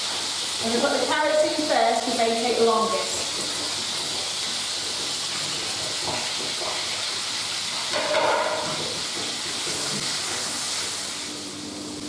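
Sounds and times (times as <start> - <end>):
food sizzling in frying pan: 0.0 - 12.0
vegetables clattering into pan: 7.8 - 10.2.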